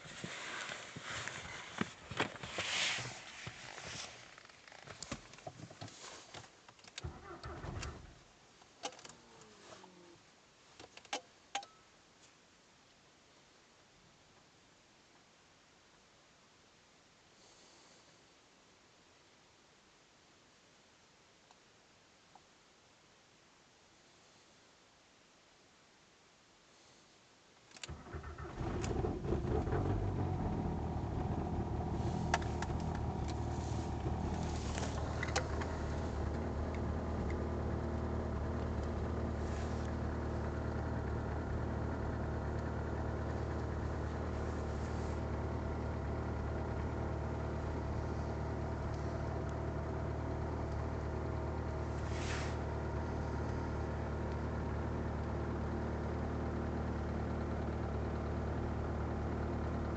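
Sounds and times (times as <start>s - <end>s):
diesel engine idling: 27.9s - 59.9s.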